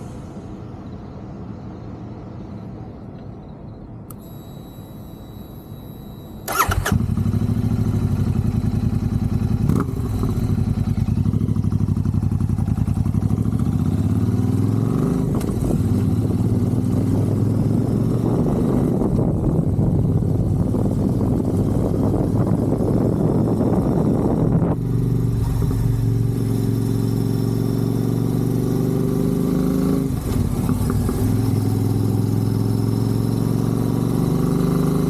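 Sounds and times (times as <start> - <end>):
faint high whine: 0.0 - 8.8
motorcycle engine cranking: 6.4 - 7.4
motorcycle engine idling: 6.4 - 13.8.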